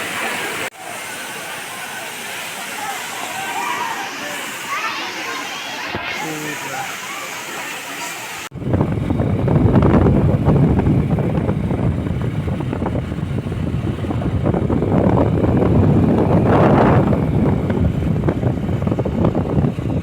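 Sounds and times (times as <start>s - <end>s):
wind buffeting microphone: 8.4s - 20.0s.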